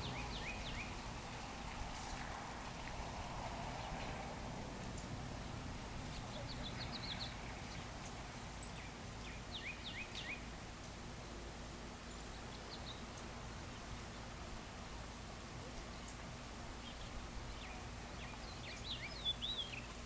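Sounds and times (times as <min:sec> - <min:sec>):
small birds chirping: 0:00.0 - 0:02.9, 0:04.8 - 0:11.0, 0:12.0 - 0:14.4, 0:15.6 - 0:20.0
steady low background noise: 0:00.0 - 0:20.0.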